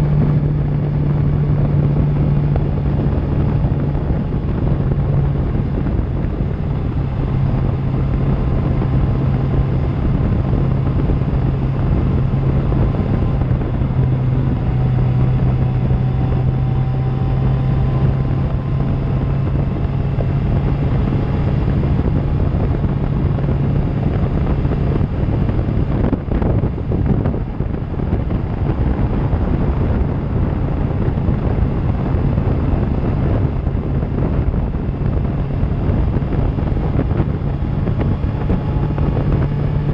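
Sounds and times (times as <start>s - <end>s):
motorcycle engine cruising: 0.0s - 39.9s
wind buffeting microphone: 0.0s - 39.9s.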